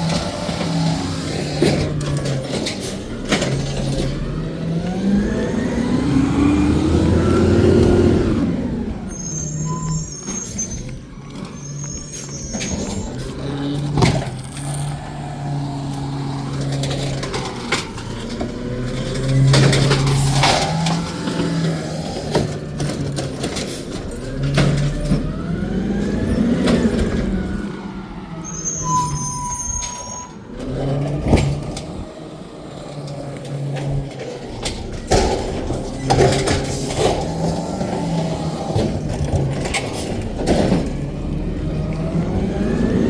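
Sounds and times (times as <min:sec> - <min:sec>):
diesel engine revving: 0:00.0 - 0:43.0
high squeal: 0:09.0 - 0:16.6, 0:27.6 - 0:30.6.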